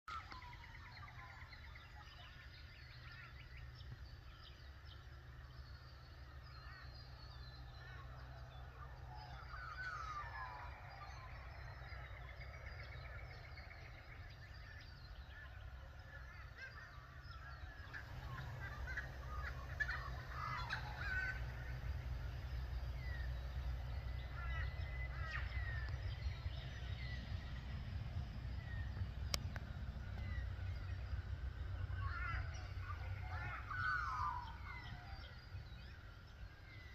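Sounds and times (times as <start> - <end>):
birds chirping: 0.1 - 36.9
low rumble: 0.2 - 36.9.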